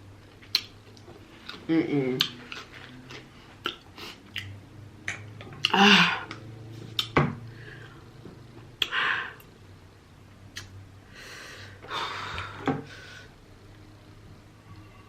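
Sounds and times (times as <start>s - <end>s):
wet mouth clicks and smacks: 0.4s - 0.8s, 10.5s - 10.8s.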